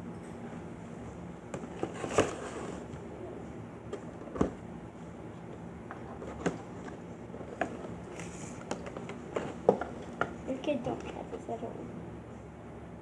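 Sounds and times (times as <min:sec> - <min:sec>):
steady low hum: 0:00.0 - 0:13.0
packaging knocks and clicks: 0:05.9 - 0:10.4.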